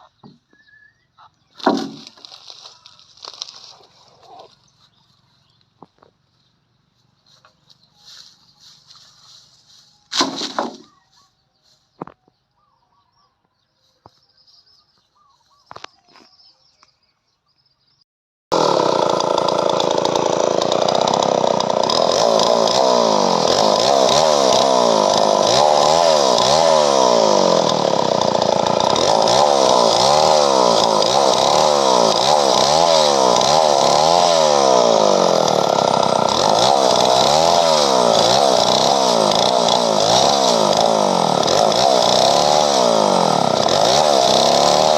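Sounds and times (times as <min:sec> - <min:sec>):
chainsaw cutting wood: 0:01.6 - 0:04.5, 0:10.1 - 0:10.9, 0:18.5 - 0:44.9.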